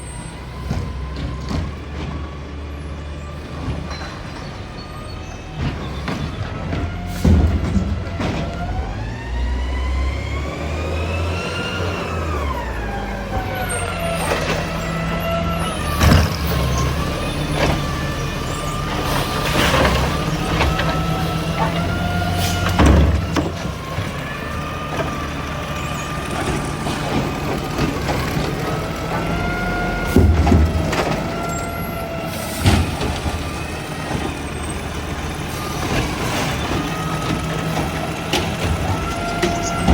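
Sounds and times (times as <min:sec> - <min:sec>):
diesel engine rumbling: 0:00.0 - 0:39.9
heavy clunk: 0:00.6 - 0:02.4, 0:03.5 - 0:09.0, 0:15.8 - 0:35.0, 0:35.6 - 0:39.9
hydraulic pump whining: 0:03.4 - 0:39.9.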